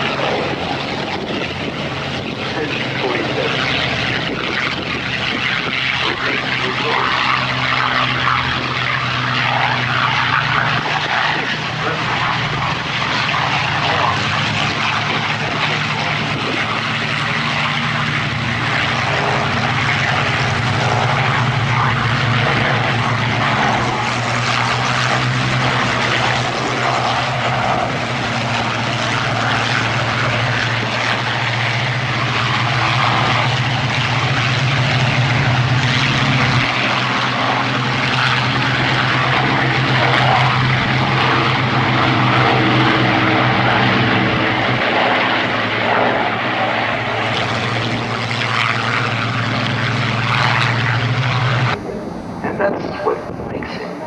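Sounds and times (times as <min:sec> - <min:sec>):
propeller aircraft engine drone: 0:00.0 - 0:54.0.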